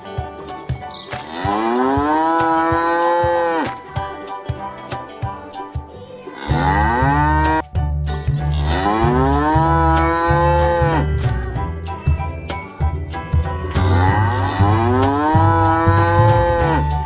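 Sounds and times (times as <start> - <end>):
background music with low beat: 0.0 - 17.0
cow mooing: 1.3 - 3.7, 6.4 - 7.6, 8.5 - 11.2, 13.8 - 17.0.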